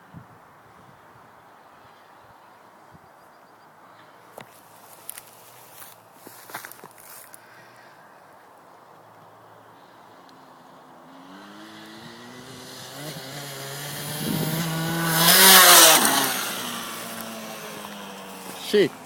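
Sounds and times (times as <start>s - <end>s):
motocross bike engine revving: 11.0s - 19.0s.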